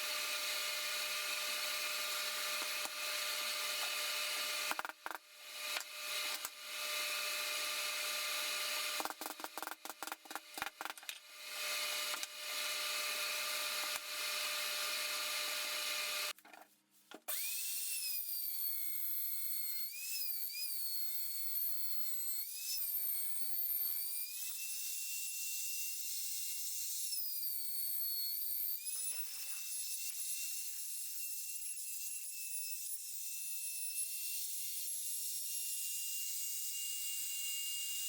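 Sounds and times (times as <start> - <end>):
power tool whirring: 0.0 - 16.4, 17.3 - 25.1.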